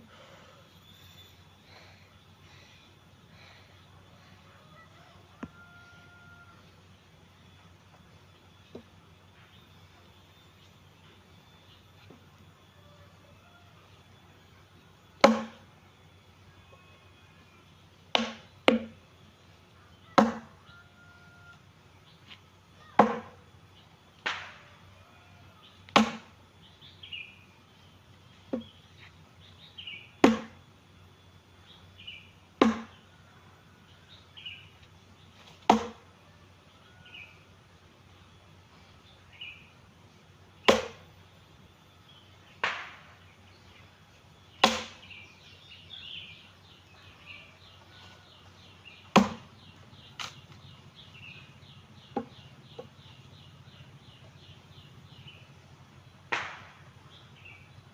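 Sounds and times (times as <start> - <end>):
axe chopping firewood: 15.2 - 15.6, 18.1 - 18.9, 20.2 - 20.6, 23.0 - 23.4, 24.2 - 24.6, 25.9 - 26.3, 30.2 - 30.6, 32.6 - 33.0, 35.6 - 36.0, 40.7 - 41.0, 42.6 - 43.0, 44.6 - 45.0, 49.1 - 49.5, 56.3 - 56.7.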